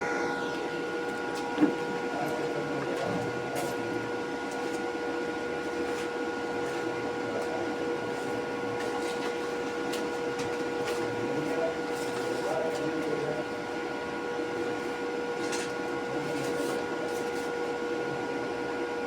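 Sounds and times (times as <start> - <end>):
machine humming with whine: 0.0 - 2.8.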